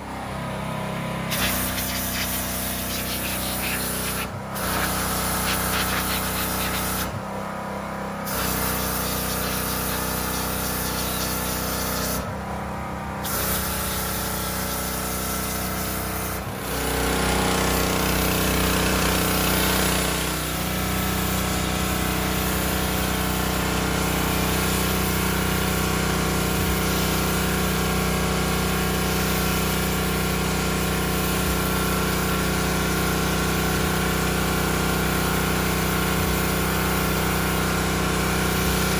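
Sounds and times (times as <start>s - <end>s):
pressure washer spray hissing: 1.3s - 7.2s, 8.3s - 12.2s.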